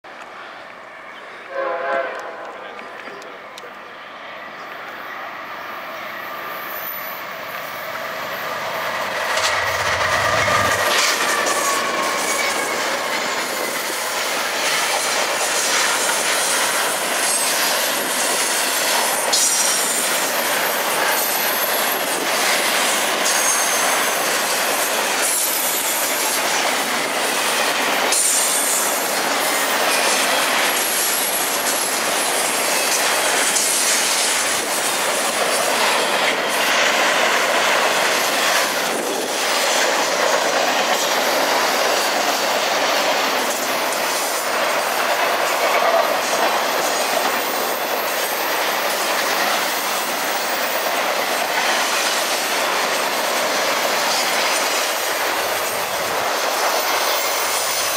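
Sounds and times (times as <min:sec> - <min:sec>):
freight train passing: 0:00.1 - 0:57.9
high wheel squeals: 0:06.0 - 0:13.7, 0:23.0 - 0:26.1
wheel-on-rail roar: 0:06.3 - 0:57.9.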